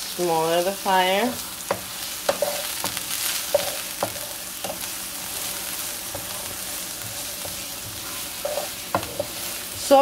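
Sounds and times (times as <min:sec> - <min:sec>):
onion and garlic sizzling in oil: 0:00.0 - 0:10.0
wooden spatula knocking on pan: 0:08.9 - 0:09.4.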